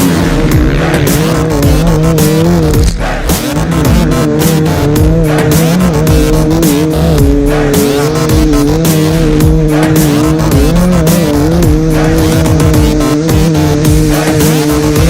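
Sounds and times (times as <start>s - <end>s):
motocross bike engines: 0.0s - 15.0s
music playing: 0.0s - 15.0s.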